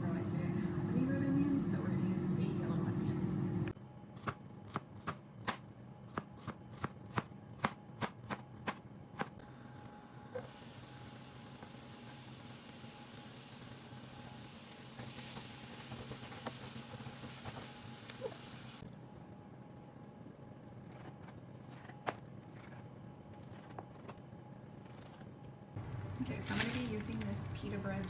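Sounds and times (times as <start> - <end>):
knife chopping on cutting board: 4.2 - 9.3
steady sizzle: 9.4 - 18.8.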